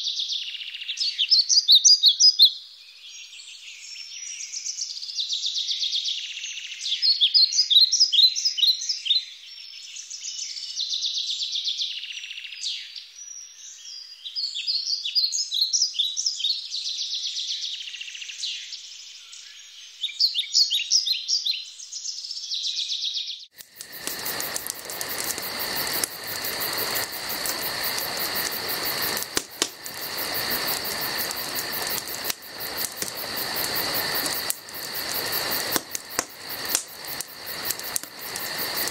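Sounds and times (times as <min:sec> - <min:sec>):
songbirds chirping and trilling: 0:00.0 - 0:38.9
constant hiss: 0:23.6 - 0:38.9
crickets and insects chirping: 0:23.6 - 0:38.9.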